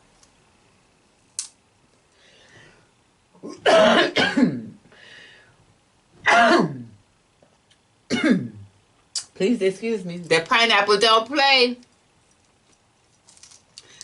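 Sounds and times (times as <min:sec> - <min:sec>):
person coughing: 0:03.4 - 0:04.8, 0:06.2 - 0:07.0, 0:08.1 - 0:08.6.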